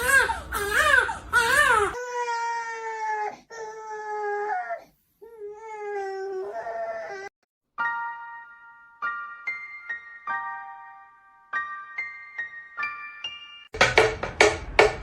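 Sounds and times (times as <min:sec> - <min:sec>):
loud wailing cries: 0:00.0 - 0:02.0.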